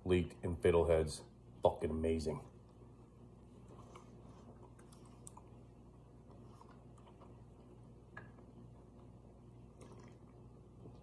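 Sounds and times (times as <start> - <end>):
faint chewing: 2.6 - 11.0.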